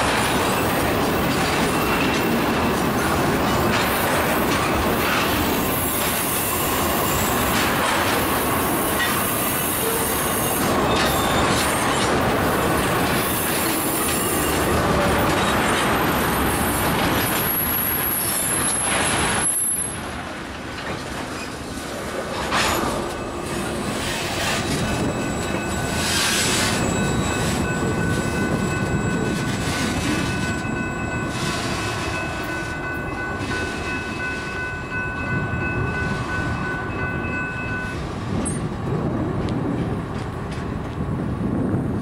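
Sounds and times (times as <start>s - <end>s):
train wheels rumbling on rail: 0.0s - 42.0s
high wheel squeal: 5.1s - 7.6s, 8.6s - 12.0s, 13.1s - 20.1s, 22.5s - 32.6s.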